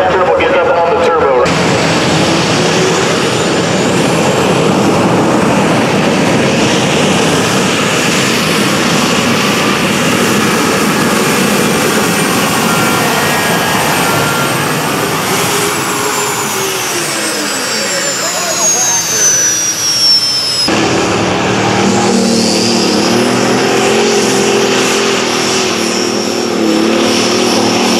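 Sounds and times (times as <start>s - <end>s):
engine running at full power: 0.0s - 27.9s
high whine: 0.0s - 27.9s.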